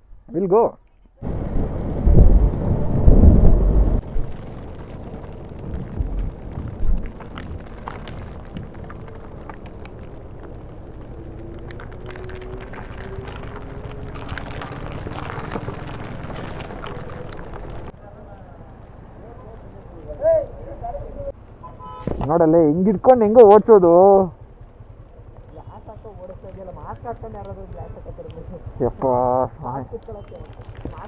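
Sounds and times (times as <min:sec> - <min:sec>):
wind buffeting microphone: 0:01.2 - 0:17.9
small ticks: 0:05.2 - 0:17.9.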